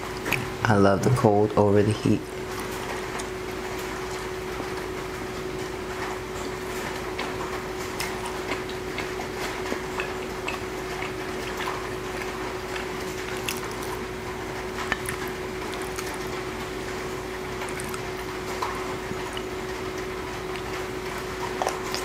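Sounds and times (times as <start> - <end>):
wet chewing: 6.4 - 22.0.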